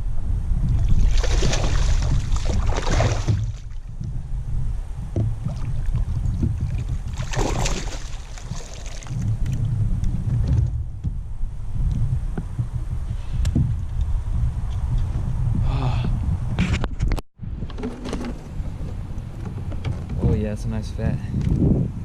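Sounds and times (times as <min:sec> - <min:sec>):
low rumble: 0:00.0 - 0:16.7
water splashing around a kayak: 0:00.7 - 0:04.0, 0:05.0 - 0:09.8.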